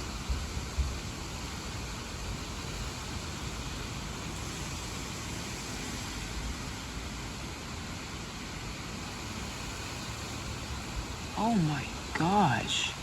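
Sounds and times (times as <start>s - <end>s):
rain: 0.0s - 13.0s.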